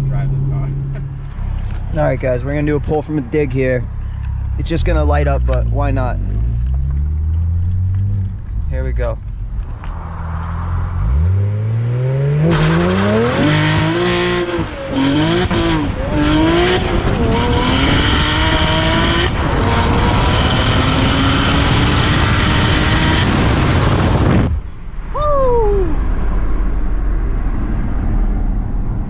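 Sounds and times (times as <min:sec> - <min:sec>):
car engine revving at full throttle: 0:04.2 - 0:24.6.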